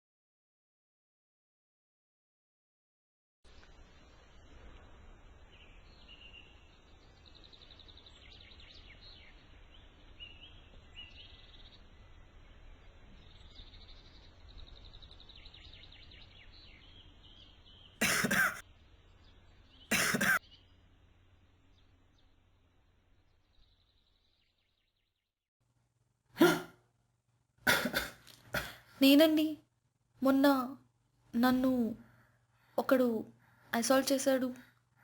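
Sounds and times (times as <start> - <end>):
low background hum: 3.5 - 24.2
birds chirping and trilling: 4.6 - 25.2
person coughing: 18.0 - 18.6, 19.9 - 20.4, 26.4 - 26.8, 27.7 - 28.9.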